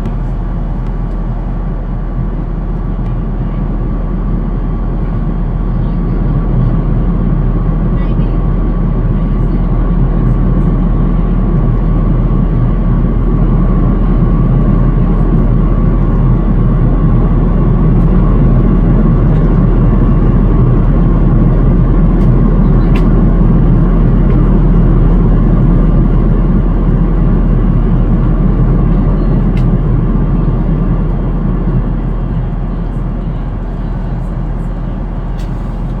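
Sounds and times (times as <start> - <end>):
airplane cabin roar: 0.0 - 36.0
thin steady whine: 8.0 - 36.0.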